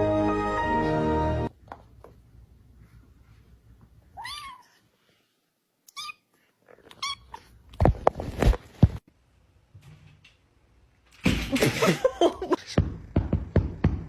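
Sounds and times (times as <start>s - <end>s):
cat meowing: 4.2s - 4.8s
sharp knocks and thumps: 12.7s - 14.0s.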